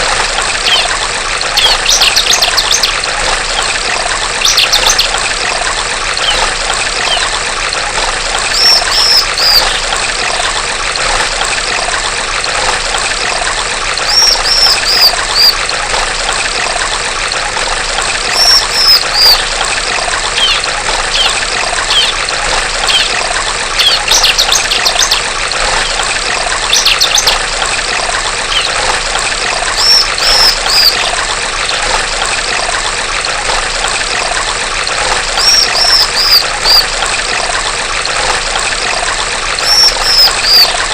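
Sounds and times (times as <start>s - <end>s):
stream water trickling: 0.0s - 40.9s
bird calling high notes: 6.2s - 7.3s, 8.5s - 9.8s, 14.0s - 15.6s, 18.3s - 19.4s, 20.4s - 22.2s, 29.8s - 31.2s, 35.4s - 36.9s, 39.6s - 40.9s.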